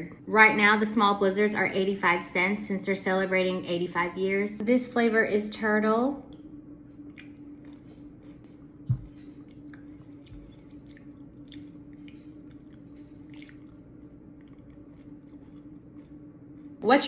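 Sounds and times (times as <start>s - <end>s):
steady low hum: 0.0s - 17.0s
quiet chewing with clicks: 6.3s - 16.8s.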